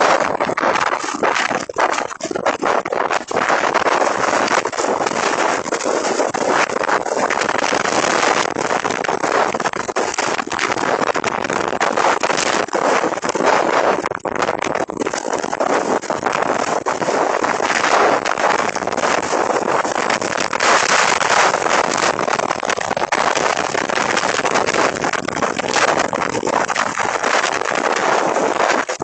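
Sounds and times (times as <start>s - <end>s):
storm wind gusting: 0.0s - 29.0s
wind buffeting microphone: 0.0s - 29.0s.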